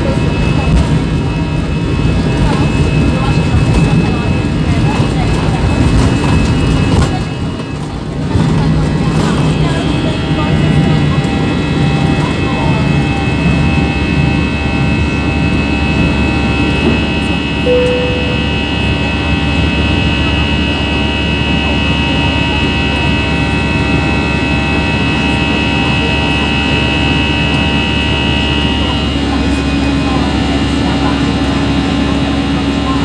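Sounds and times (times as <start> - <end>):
jet engines whining: 0.0 - 33.0
short faint tone: 17.6 - 19.1.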